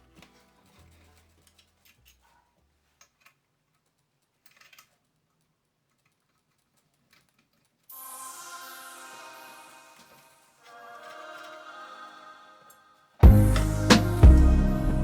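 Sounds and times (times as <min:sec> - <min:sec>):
music: 0:07.9 - 0:10.3, 0:13.2 - 0:15.0.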